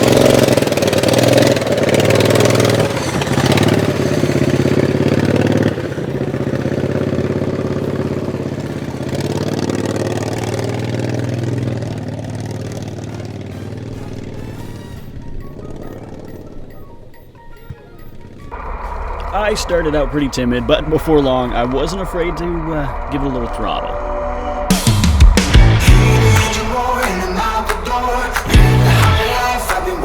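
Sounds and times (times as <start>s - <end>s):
lawn mower engine revving: 0.0s - 30.0s.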